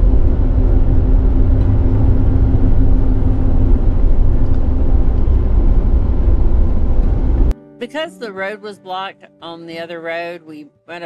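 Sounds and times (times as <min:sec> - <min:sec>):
vehicle road and engine rumble: 0:00.0 - 0:07.6.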